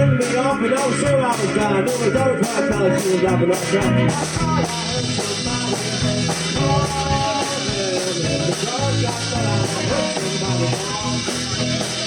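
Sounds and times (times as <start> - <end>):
rock band playing: 0.0 - 12.0.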